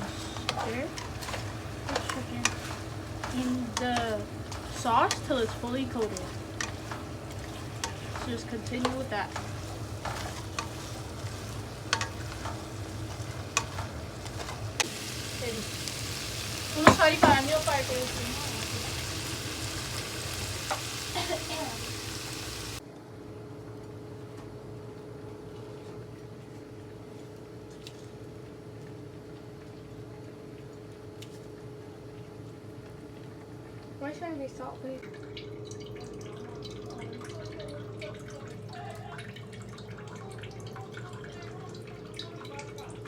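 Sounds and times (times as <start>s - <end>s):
chicken sizzling in a pan: 0.0s - 22.8s
constant low hum: 0.0s - 22.8s.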